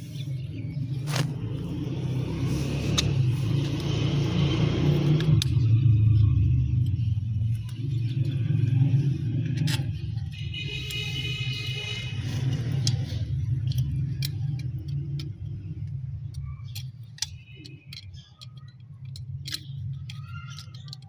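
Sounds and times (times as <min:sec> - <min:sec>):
light clicks and taps: 0:12.5 - 0:21.0.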